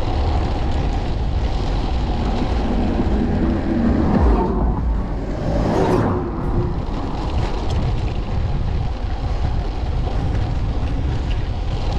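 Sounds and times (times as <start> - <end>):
wind buffeting microphone: 0.0 - 11.9
faint engine-like hum: 1.4 - 8.0.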